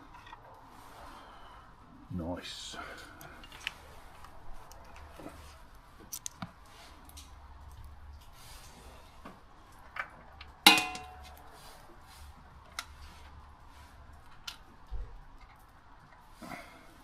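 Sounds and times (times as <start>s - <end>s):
sharp metallic clink: 10.7s - 11.3s.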